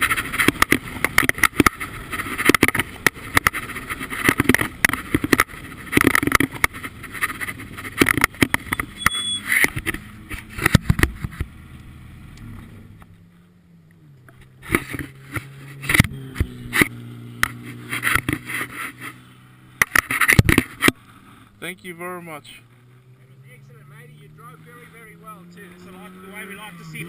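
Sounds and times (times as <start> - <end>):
sharp knocks and rustles: 0.0 - 11.6, 14.2 - 19.2, 19.8 - 21.0
car engine idling: 0.0 - 27.0.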